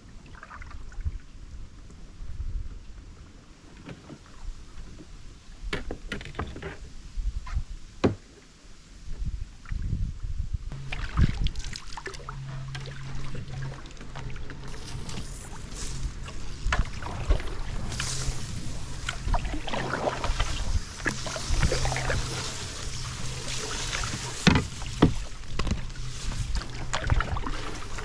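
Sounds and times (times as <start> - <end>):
low steady hum: 9.3 - 28.0
paddle strokes splashing: 10.8 - 28.0.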